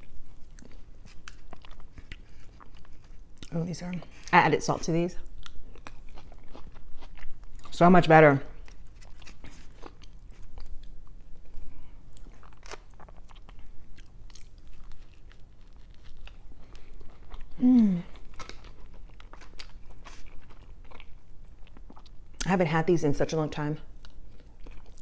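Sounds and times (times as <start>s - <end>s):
person chewing crispy food: 0.0s - 4.4s, 5.2s - 7.8s, 8.5s - 22.5s, 23.9s - 25.0s
person humming: 17.6s - 18.1s.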